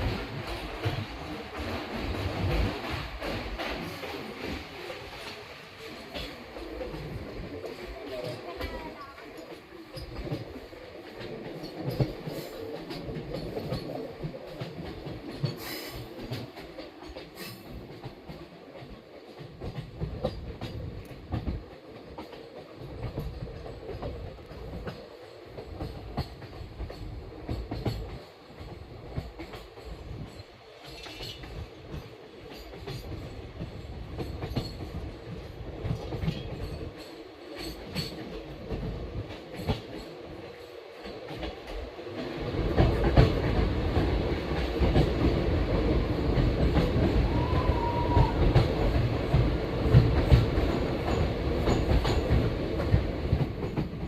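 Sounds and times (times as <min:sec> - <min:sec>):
train rumbling along track: 0:00.0 - 0:54.0.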